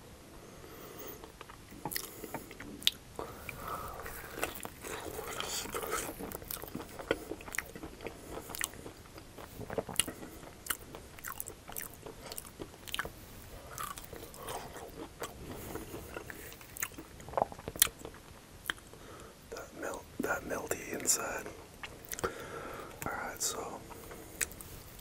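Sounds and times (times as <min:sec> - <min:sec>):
crispy crust crunching while chewing: 0:01.2 - 0:19.0.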